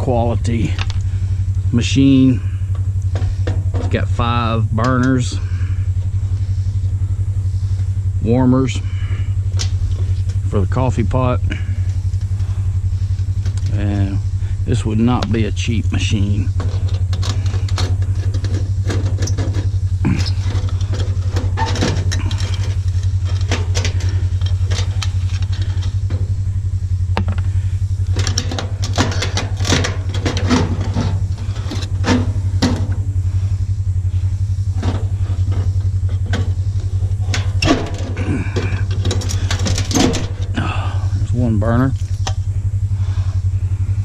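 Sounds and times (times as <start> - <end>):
low motor hum: 0.0 - 44.0
metal parts clinking: 16.5 - 26.2, 28.1 - 32.9, 38.8 - 40.5.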